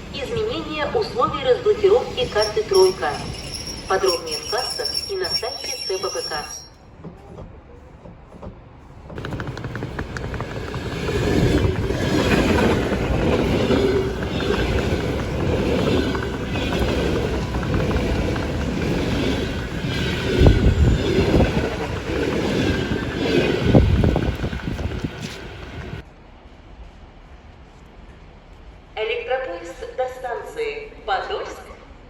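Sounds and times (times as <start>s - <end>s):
electric train passing: 0.0s - 7.0s, 8.0s - 26.1s
wheels clattering over rail joints: 8.4s - 26.0s.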